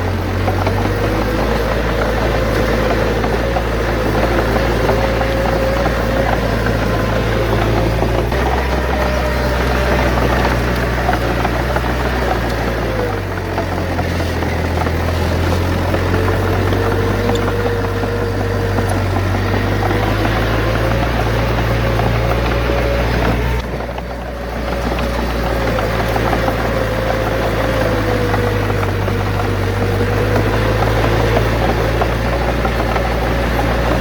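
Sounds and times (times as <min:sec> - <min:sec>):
bulldozer diesel engine running: 0:00.0 - 0:34.0.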